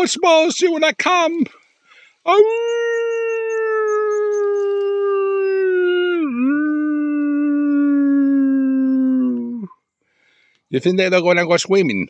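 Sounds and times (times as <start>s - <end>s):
dog howling: 2.3s - 9.8s.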